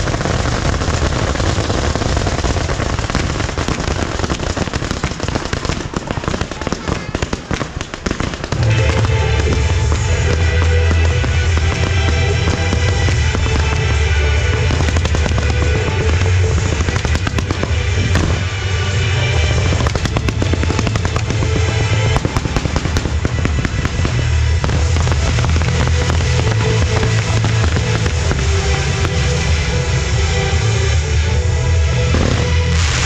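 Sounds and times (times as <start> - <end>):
fireworks cracking and banging: 0.0 - 33.0
music with steady bass: 8.5 - 33.0.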